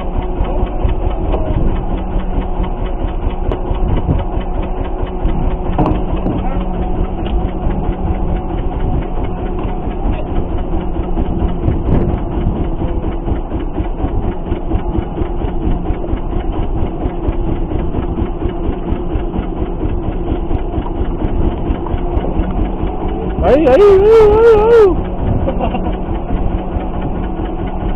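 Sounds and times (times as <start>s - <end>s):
boat engine running: 0.0s - 27.9s.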